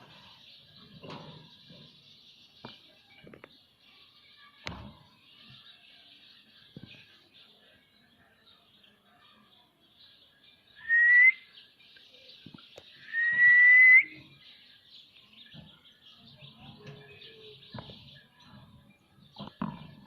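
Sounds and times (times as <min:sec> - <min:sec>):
parrot whistled calls: 0:10.8 - 0:11.4, 0:13.1 - 0:14.2.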